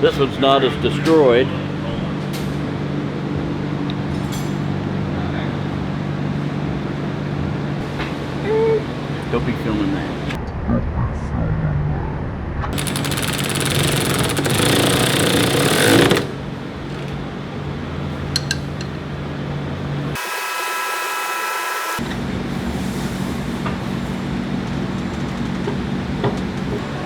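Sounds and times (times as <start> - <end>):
low shop hum: 0.0 - 10.6, 11.9 - 27.0
power tool hammering: 12.7 - 17.3, 20.1 - 22.0.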